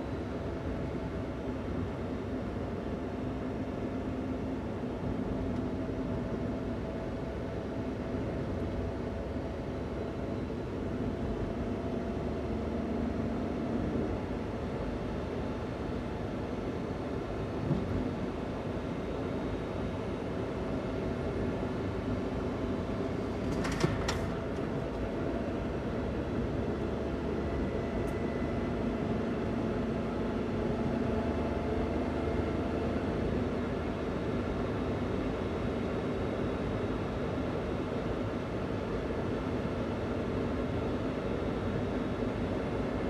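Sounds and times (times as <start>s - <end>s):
van engine running: 21.2s - 31.4s.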